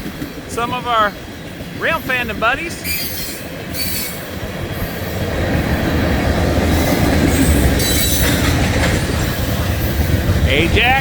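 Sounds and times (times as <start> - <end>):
freight train wheels rumbling: 0.0 - 11.0
high wheel squeals: 2.8 - 4.3, 6.7 - 8.6.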